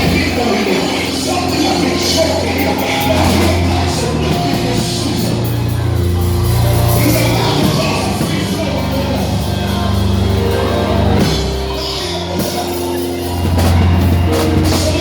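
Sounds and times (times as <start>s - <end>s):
drums: 0.0s - 15.0s
keyboard chords: 0.0s - 15.0s
low bass: 0.0s - 15.0s.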